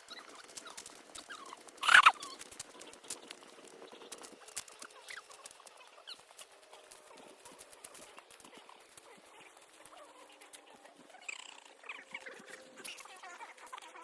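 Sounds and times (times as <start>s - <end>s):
high wavering calls: 1.2s - 2.4s, 11.0s - 13.2s.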